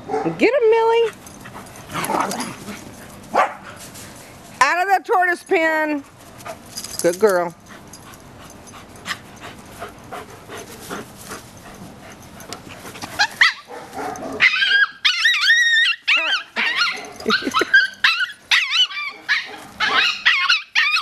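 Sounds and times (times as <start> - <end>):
dog yipping and whining: 13.2 - 21.0.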